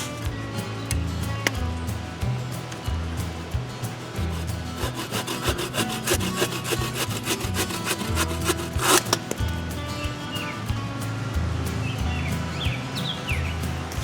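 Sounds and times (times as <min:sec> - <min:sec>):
background music: 0:00.0 - 0:14.0
hand saw cutting wood: 0:04.1 - 0:09.3.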